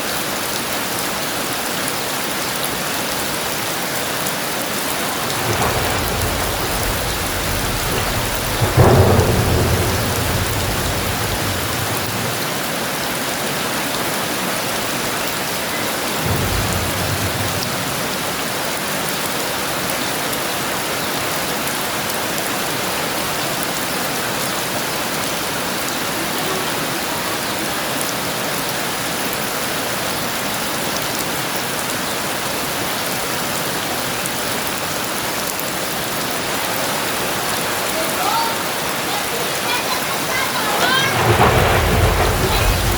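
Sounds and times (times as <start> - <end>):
heavy rain falling: 0.0 - 42.9
thunder rumbling: 3.0 - 21.4, 35.7 - 42.9.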